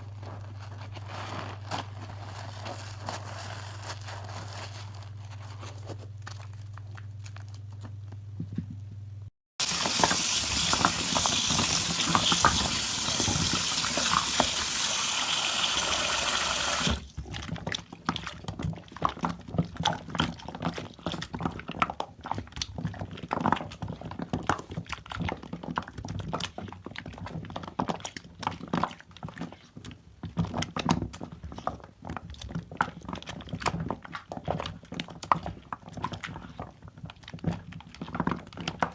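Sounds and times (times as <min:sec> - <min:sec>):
water tap running: 0:09.6 - 0:17.1
soap lather squishing by hand: 0:09.6 - 0:38.9.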